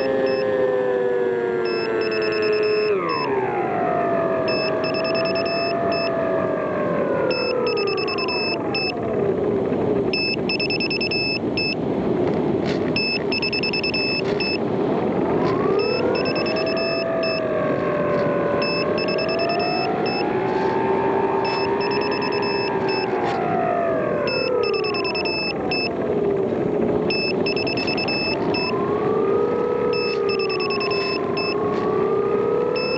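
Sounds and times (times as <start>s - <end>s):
high-pitched beeps: 0.0s - 0.5s, 1.7s - 3.3s, 4.5s - 6.1s, 7.3s - 9.0s, 10.1s - 11.8s, 13.0s - 14.6s, 15.8s - 17.5s, 18.6s - 20.3s, 21.4s - 23.1s, 24.3s - 25.9s, 27.1s - 28.8s, 29.9s - 31.6s
model airplane motor droning: 0.0s - 3.3s.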